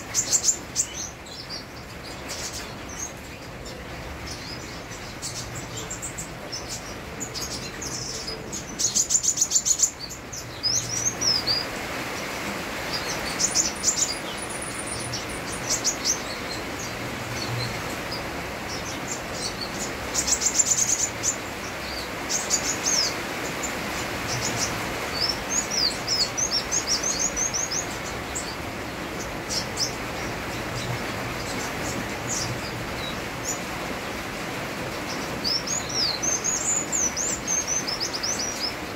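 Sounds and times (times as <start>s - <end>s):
rain hiss: 0.0s - 38.9s
bird chirping and trilling: 12.9s - 23.6s, 24.2s - 34.2s, 34.9s - 38.9s.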